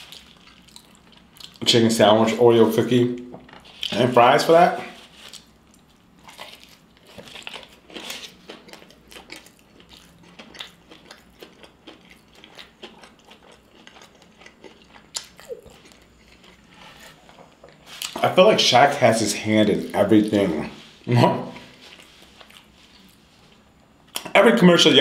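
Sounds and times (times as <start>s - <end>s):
person chewing food: 0.0s - 1.6s, 5.0s - 18.2s, 21.7s - 24.3s.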